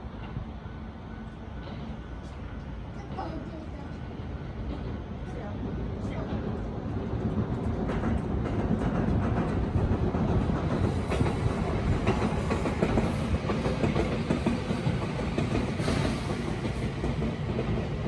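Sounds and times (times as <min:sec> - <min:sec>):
train rumbling past: 0:00.0 - 0:18.0
wheels clattering on rails: 0:05.6 - 0:18.0.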